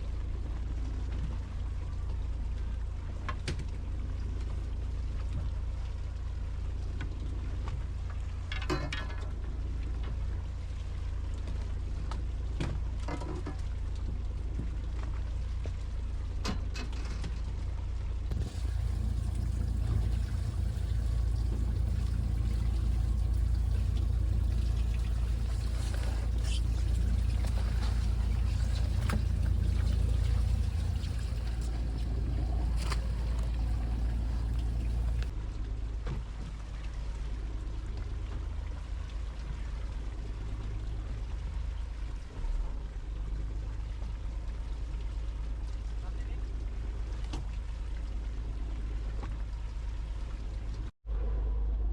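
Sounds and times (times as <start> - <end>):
boat engine running: 18.3 - 35.3
pouring rain: 18.3 - 35.3
running water: 18.3 - 35.3.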